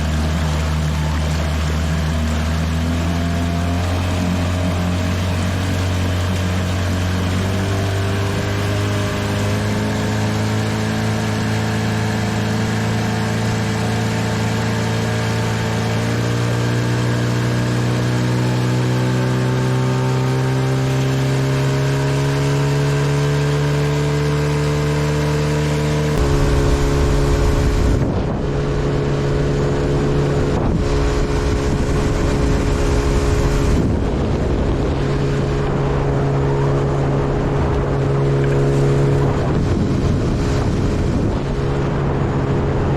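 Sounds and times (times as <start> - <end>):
outboard motor running: 0.0 - 42.9
rough rushing noise with gusts: 22.4 - 42.9.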